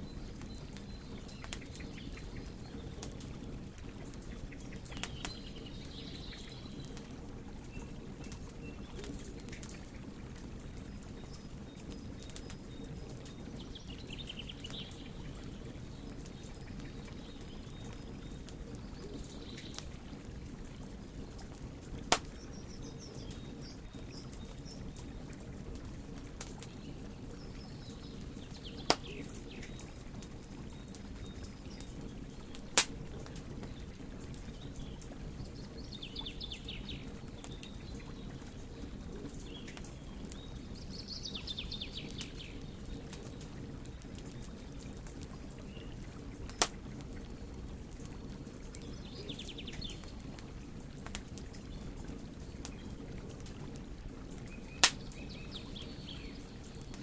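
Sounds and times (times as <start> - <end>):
wood fire crackling: 0.0 - 57.0
birds chirping: 26.7 - 33.9
loud sharp pops: 54.8 - 55.0.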